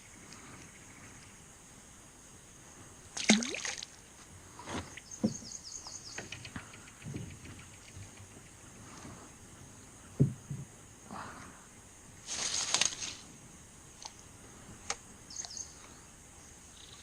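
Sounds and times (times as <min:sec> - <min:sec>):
water splashing against kayak: 0:03.2 - 0:04.0.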